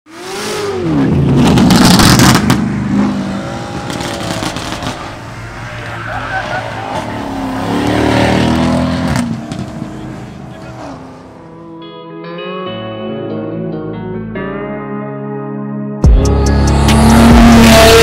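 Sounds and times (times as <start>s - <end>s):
car engines revving: 0.1s - 11.7s, 16.2s - 18.0s.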